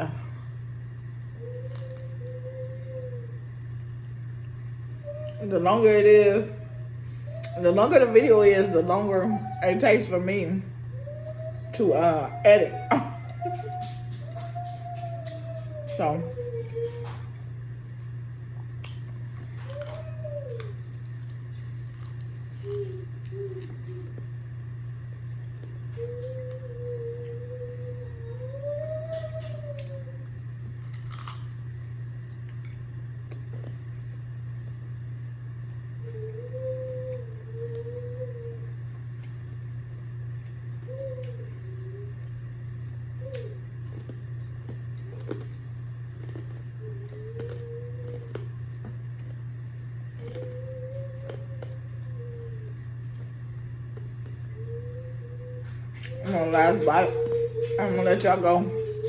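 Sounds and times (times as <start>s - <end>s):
person humming: 0.0s - 0.4s, 54.6s - 59.0s
steady low hum: 0.0s - 59.0s
chewing and crunching food: 0.6s - 5.6s, 12.7s - 59.0s.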